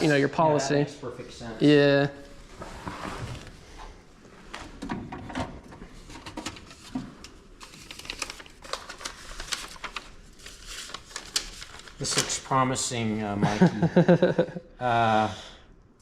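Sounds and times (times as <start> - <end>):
papers rustling and clicking: 5.6 - 12.5.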